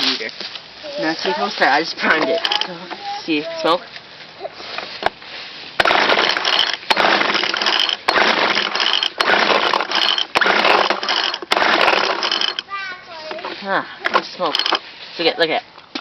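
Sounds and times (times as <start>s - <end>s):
small two-stroke engine revving: 5.8s - 12.6s.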